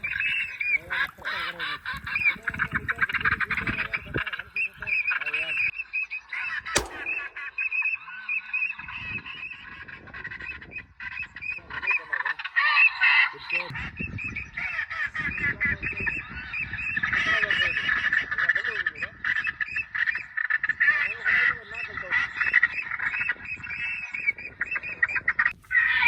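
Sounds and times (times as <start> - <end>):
ducks and geese honking and quacking: 0.0 - 5.7, 9.5 - 13.7, 14.6 - 26.0
sharp crack: 6.8 - 7.7.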